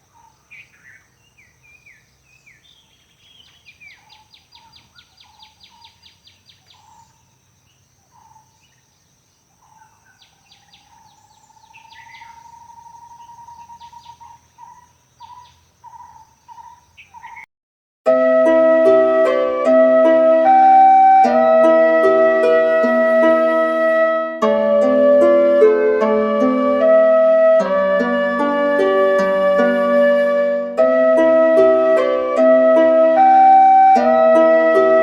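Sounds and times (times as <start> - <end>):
bird trill: 0.0 - 7.3, 9.6 - 17.5
birds calling: 0.0 - 17.5
bird whistling: 10.7 - 17.4.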